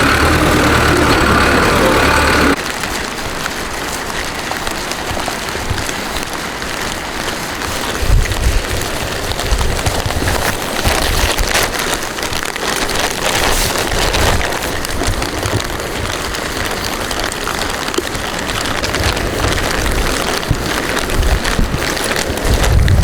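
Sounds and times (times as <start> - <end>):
low rumbles: 0.0 - 2.6
steady rain falling: 0.0 - 23.0.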